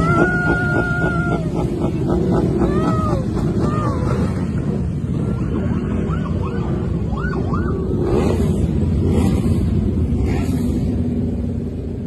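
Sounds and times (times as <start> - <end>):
rumble of engines and traffic: 0.0 - 12.0
siren yelping: 5.6 - 8.2.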